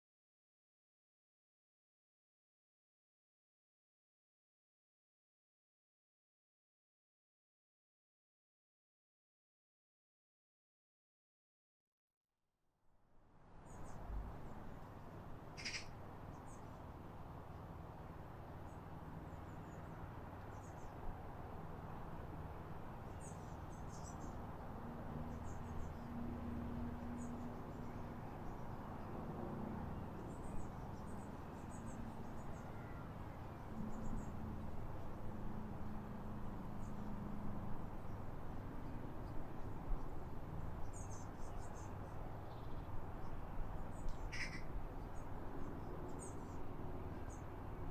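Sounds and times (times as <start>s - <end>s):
small birds chirping: 15.6s - 16.8s, 23.1s - 24.4s, 40.8s - 46.6s.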